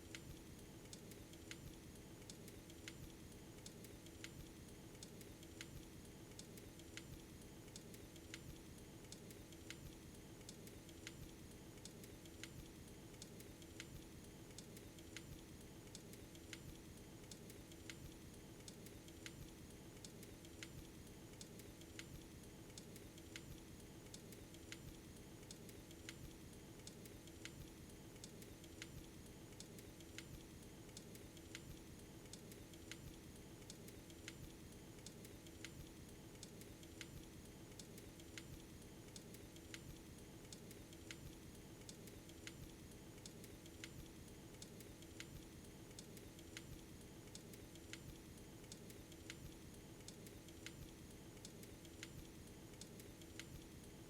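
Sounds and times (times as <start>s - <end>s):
faint light clicks: 0.0s - 53.8s.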